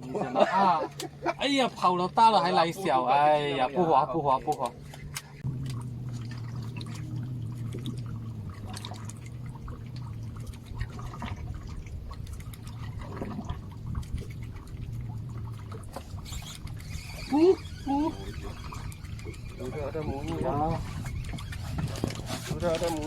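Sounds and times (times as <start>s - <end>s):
water lapping against boat hull: 0.0s - 23.0s
steady low hum: 2.2s - 20.2s.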